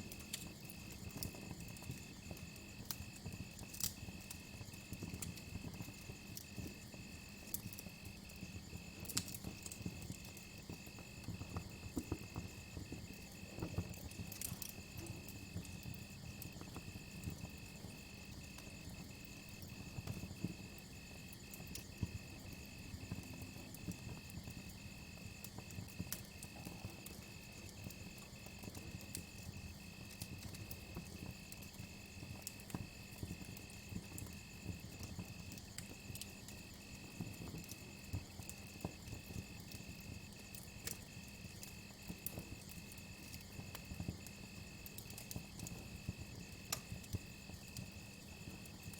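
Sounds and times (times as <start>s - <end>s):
campfire crackling: 0.0s - 48.9s
cricket chirping: 5.6s - 48.9s.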